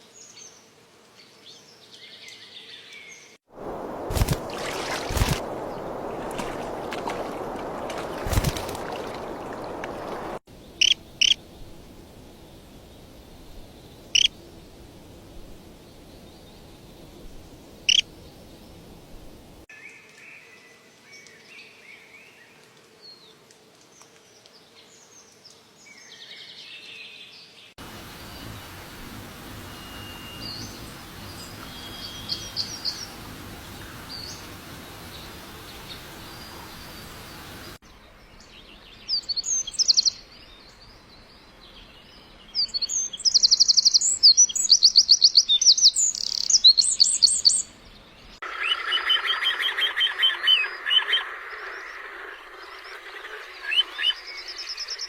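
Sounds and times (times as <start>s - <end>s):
outdoor background noise: 0.0s - 55.0s
small birds chirping: 1.5s - 11.4s, 13.8s - 14.3s, 27.4s - 55.0s.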